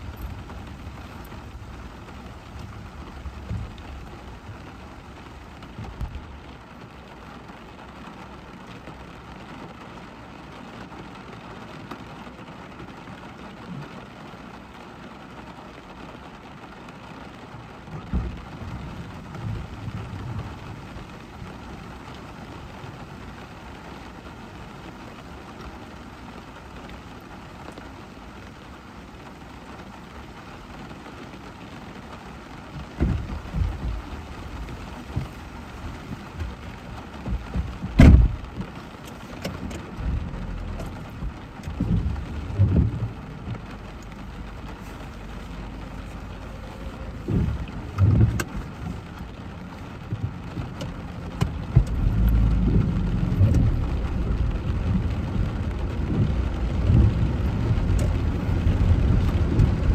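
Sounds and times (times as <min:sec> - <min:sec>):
rain on a car: 0:00.0 - 0:59.9
thunder rumbling: 0:39.6 - 0:59.9.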